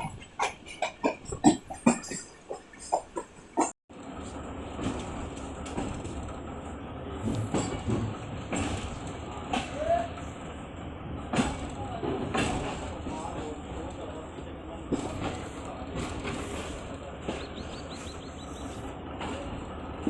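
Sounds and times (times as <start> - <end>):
train rumbling: 0.0 - 20.0
train wheels knocking: 4.6 - 20.0.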